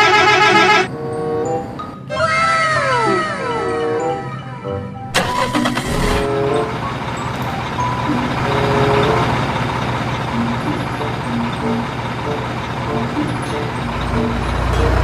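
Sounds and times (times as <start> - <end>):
background music short notes: 0.0 - 15.0
vehicle engine running: 5.2 - 15.0.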